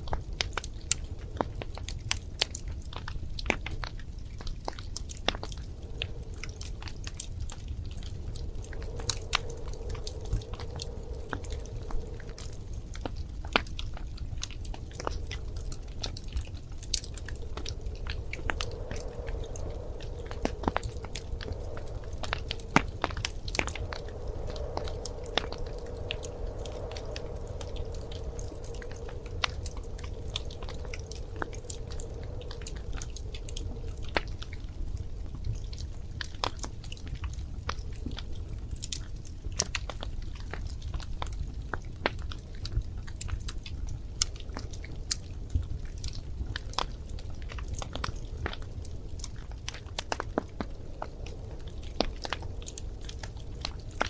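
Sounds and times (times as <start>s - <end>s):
wood fire crackling: 0.0s - 54.0s
faint wavering hum: 3.8s - 38.9s.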